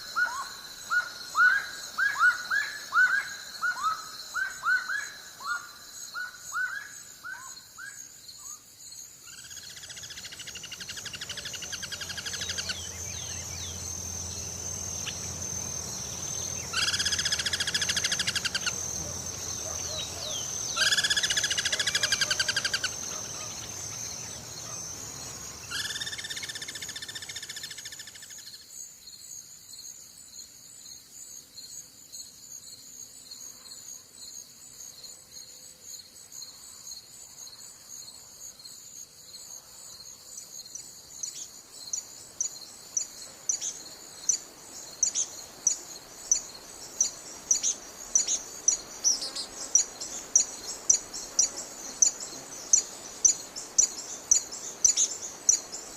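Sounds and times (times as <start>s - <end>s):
insect buzzing calls: 0.0s - 55.9s
insects trilling: 0.0s - 55.9s
regular chirping pulse: 10.2s - 27.2s.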